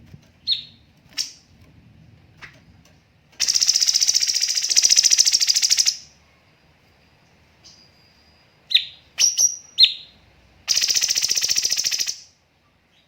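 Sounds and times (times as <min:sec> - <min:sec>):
bird chirping and trilling: 0:00.4 - 0:01.4, 0:03.4 - 0:06.2, 0:07.6 - 0:12.3.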